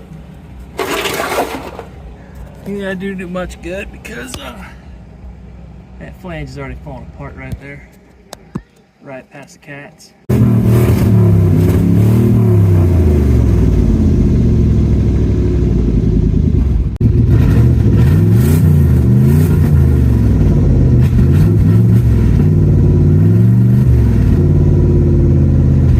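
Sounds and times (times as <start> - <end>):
loud engine revving: 10.3 - 25.9.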